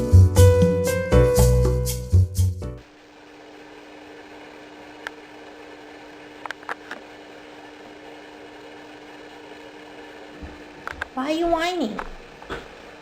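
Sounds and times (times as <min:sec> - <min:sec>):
room tone hum: 0:02.8 - 0:13.0.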